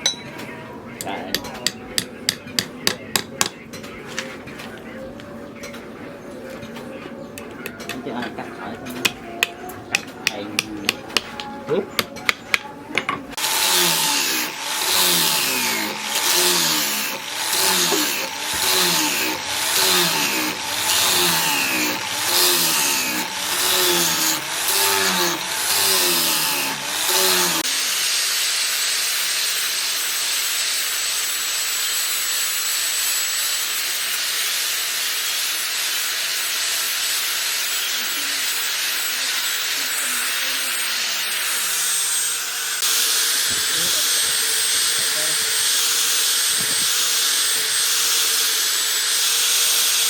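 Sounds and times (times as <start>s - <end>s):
power tool strokes: 13.3s - 50.0s.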